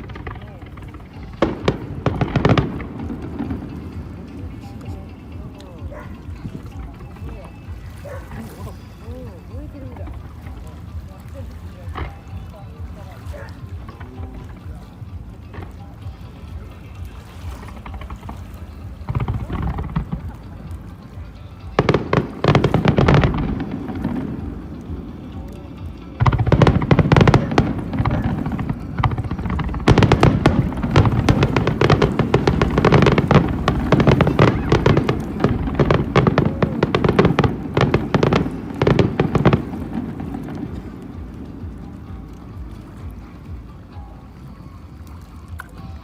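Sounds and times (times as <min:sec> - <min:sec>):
fireworks bursting: 0:00.0 - 0:05.4, 0:17.6 - 0:42.4.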